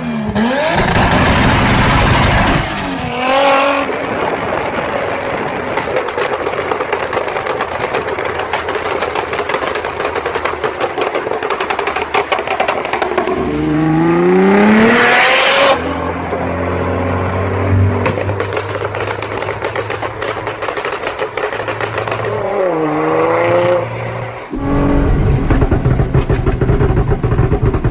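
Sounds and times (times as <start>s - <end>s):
car engine revving and idling: 0.0s - 5.6s, 12.9s - 27.9s.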